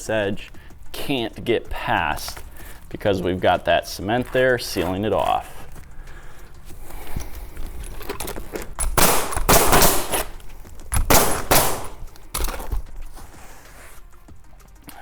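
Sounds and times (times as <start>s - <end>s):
pneumatic nailer firing: 8.8s - 12.8s.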